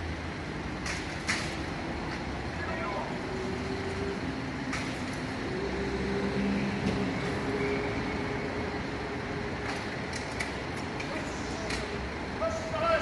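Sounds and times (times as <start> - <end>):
heavy vehicle engine running: 0.0 - 12.5.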